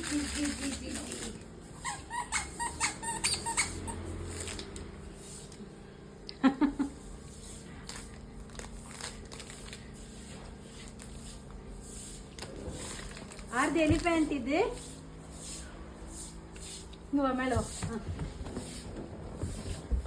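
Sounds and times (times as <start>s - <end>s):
squeaky toy squeaking: 1.8s - 4.1s.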